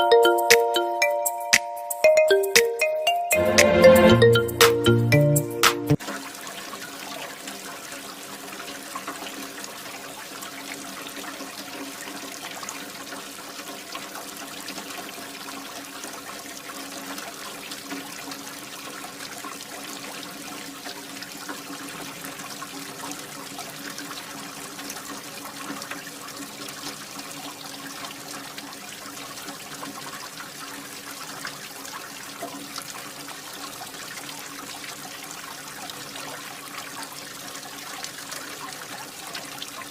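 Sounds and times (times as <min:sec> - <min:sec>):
water pouring and splashing: 0:06.0 - 0:39.9.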